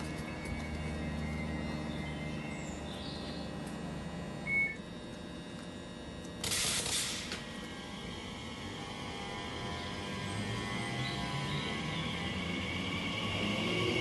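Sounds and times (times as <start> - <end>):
hiss of air: 6.4 - 7.4.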